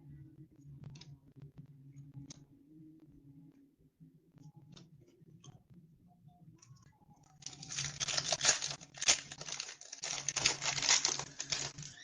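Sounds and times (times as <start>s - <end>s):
foil wrapper tearing and crinkling: 7.4s - 12.0s.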